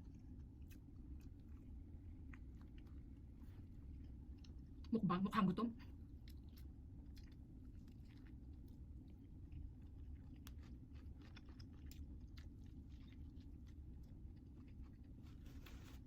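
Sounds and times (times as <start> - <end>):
person chewing food: 0.0 - 4.9, 5.9 - 16.0
low steady hum: 0.0 - 16.0.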